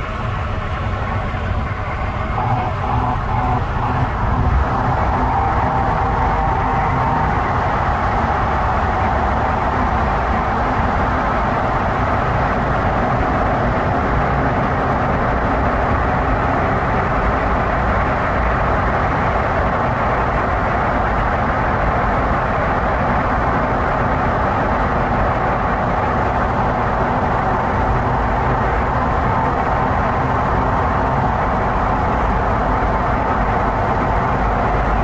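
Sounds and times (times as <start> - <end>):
vehicle travel noise: 0.0 - 35.0.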